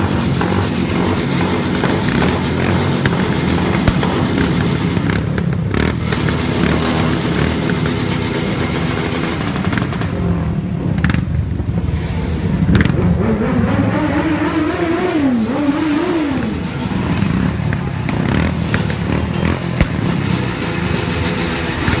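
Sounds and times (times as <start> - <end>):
motorcycle engine revving: 0.0 - 22.0
motorcycle engines rumbling: 0.0 - 22.0.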